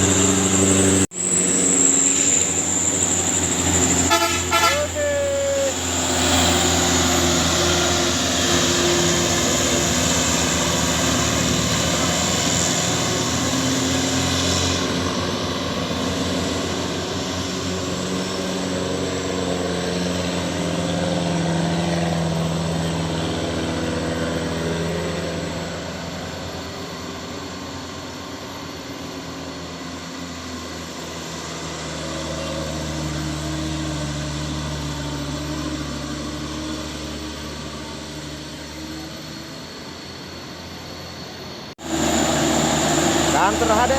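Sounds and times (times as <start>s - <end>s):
truck diesel engine running: 0.0s - 43.9s.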